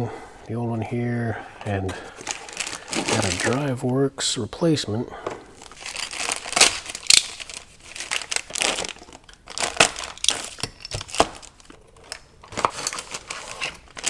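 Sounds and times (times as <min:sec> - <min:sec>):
plastic packaging crinkling: 0:02.0 - 0:04.0, 0:05.6 - 0:14.0.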